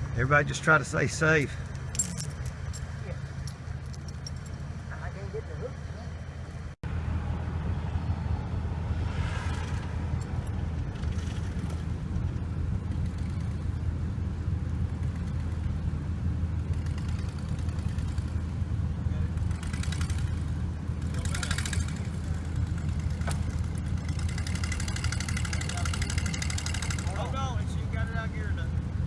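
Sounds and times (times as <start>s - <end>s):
car engine and road rumble: 0.0s - 29.0s
brief hissy swells: 8.9s - 10.3s.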